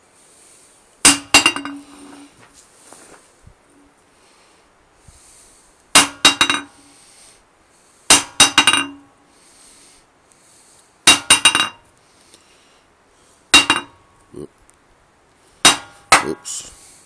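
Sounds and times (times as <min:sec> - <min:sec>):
hammer striking anvil: 0:01.0 - 0:01.9, 0:06.0 - 0:06.7, 0:08.1 - 0:09.0, 0:11.1 - 0:11.8, 0:13.6 - 0:14.0, 0:15.7 - 0:16.4
hammer bouncing on anvil: 0:01.1 - 0:01.9, 0:06.0 - 0:06.8, 0:08.1 - 0:09.0, 0:11.1 - 0:11.8, 0:13.6 - 0:14.0, 0:15.7 - 0:16.4.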